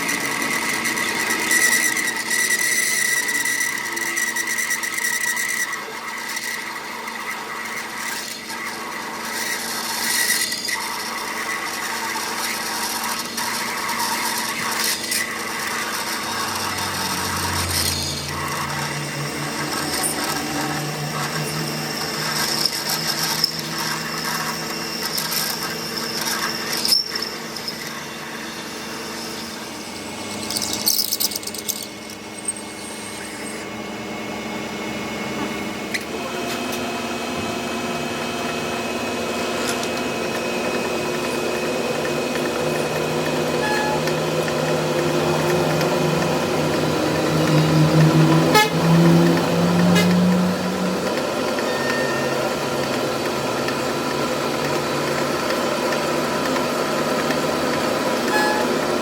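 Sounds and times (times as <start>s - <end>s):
power tool running: 0.0s - 59.0s
tool scraping and squealing: 0.0s - 59.0s.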